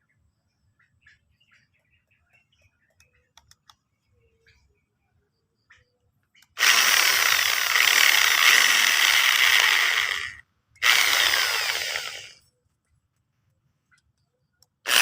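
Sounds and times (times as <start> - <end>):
electric drill boring: 6.5 - 12.4.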